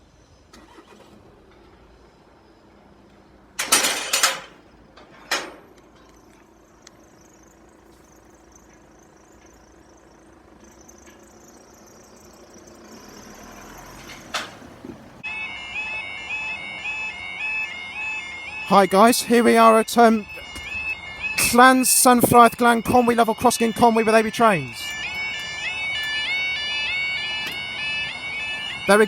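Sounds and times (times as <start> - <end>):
road background noise: 0.0 - 29.0
level crossing barrier clunks: 3.6 - 6.1.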